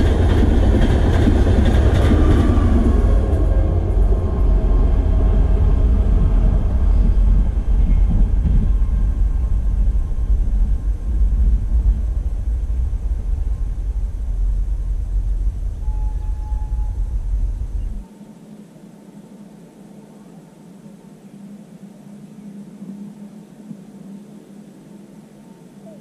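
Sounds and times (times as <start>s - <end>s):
train rumble: 0.0s - 19.1s.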